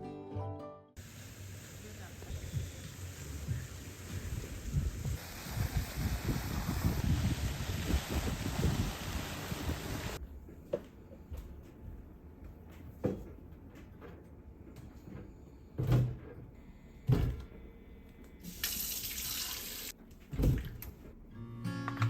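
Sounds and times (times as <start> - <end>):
knocks and clunks of handling: 10.4 - 17.6, 20.0 - 21.2
sink tap running: 18.5 - 19.9.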